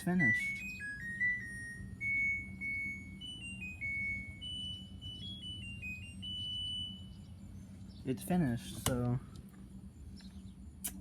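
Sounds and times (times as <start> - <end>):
washing machine electronic beep melody: 0.0 - 7.8.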